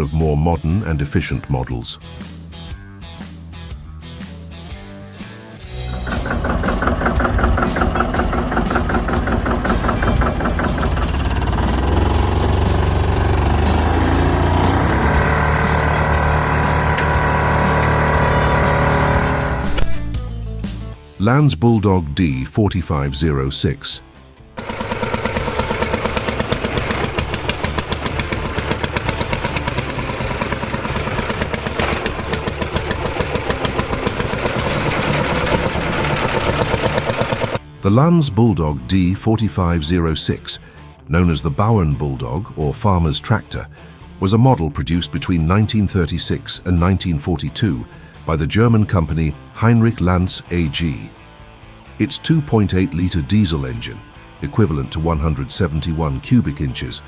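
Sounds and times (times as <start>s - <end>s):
tractor engine running steadily: 5.6s - 20.2s, 24.6s - 37.6s.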